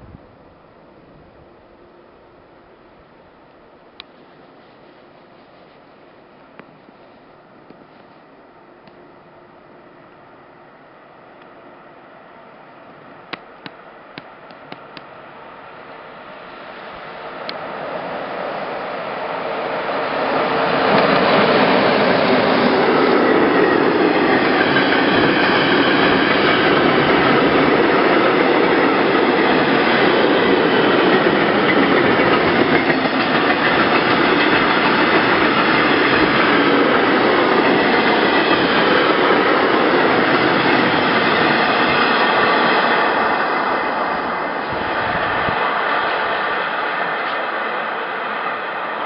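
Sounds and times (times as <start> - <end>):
train wheels rolling on rails: 11.0 - 49.0.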